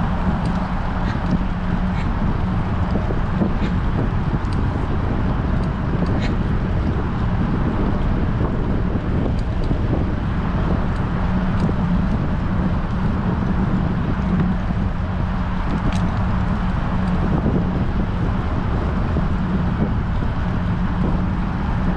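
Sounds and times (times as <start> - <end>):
wind rushing over microphone: 0.0 - 21.9
faint clicks: 15.6 - 17.2.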